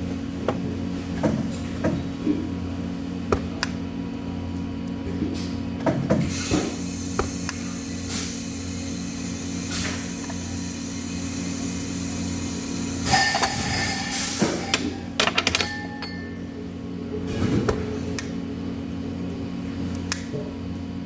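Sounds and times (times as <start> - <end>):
bursts of hiss: 6.3 - 14.6
machine hum: 6.4 - 17.3
clicks and clinks: 13.1 - 16.4.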